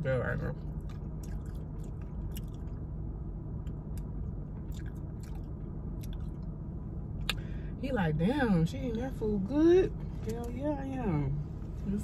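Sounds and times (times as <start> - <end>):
steady low hum: 0.0 - 12.0
person chewing crunchy food: 0.7 - 2.9, 3.6 - 6.5.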